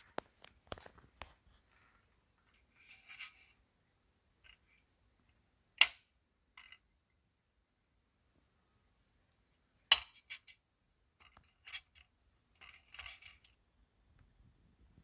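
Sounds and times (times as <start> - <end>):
clicks and taps of metal parts: 9.9 - 10.6.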